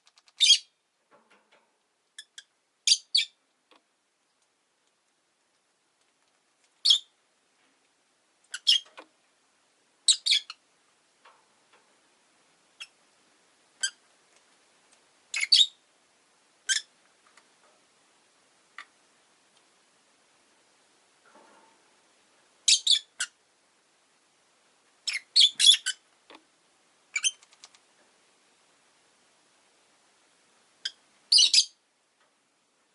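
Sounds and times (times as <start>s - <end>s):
lovebirds chirping: 0.1s - 0.8s, 2.2s - 3.4s, 6.8s - 7.2s, 8.4s - 8.9s, 10.0s - 10.6s, 12.7s - 13.0s, 13.8s - 14.0s, 15.3s - 15.8s, 16.6s - 16.9s, 22.6s - 23.4s, 25.0s - 26.0s, 27.1s - 27.4s, 30.8s - 31.8s.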